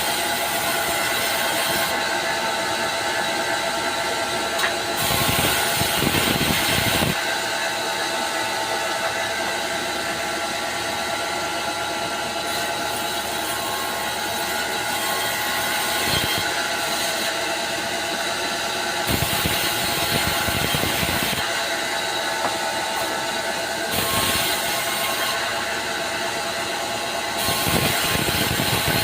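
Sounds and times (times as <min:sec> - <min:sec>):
chainsaw cutting wood: 0:19.1 - 0:21.5, 0:23.9 - 0:25.1, 0:27.4 - 0:29.0.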